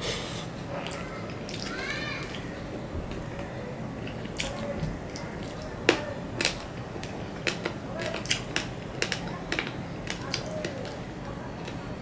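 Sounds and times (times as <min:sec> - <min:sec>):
fingers mixing rice on steel plate: 0:04.0 - 0:11.0.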